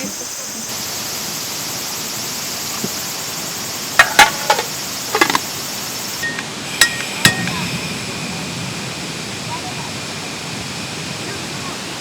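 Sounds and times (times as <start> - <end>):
high background hiss: 0.0 - 12.0
dishes and utensils clinking: 4.0 - 5.5, 6.2 - 7.6.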